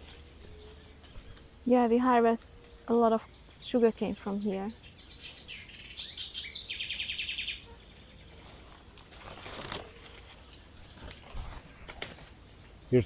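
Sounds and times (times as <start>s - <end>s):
high-pitched insect drone: 0.0s - 7.6s.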